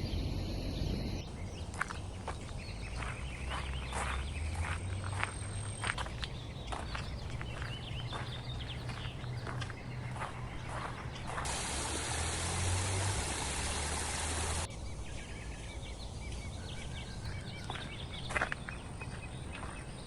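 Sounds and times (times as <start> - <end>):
running water rushing: 11.3 - 14.7.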